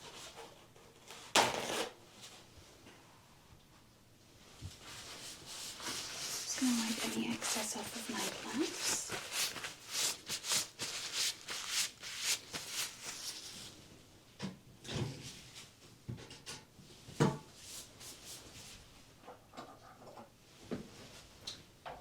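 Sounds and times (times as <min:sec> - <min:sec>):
gloved hands rubbing: 0:05.0 - 0:13.7.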